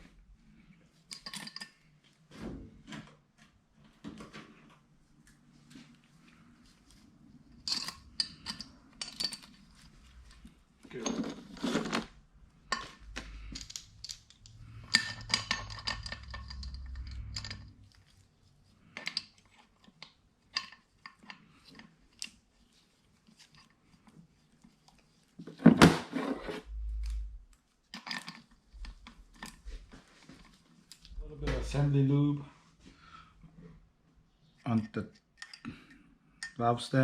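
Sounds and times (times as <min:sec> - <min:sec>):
metal tools clinking: 0:01.1 - 0:01.8, 0:07.6 - 0:12.1, 0:12.7 - 0:17.9.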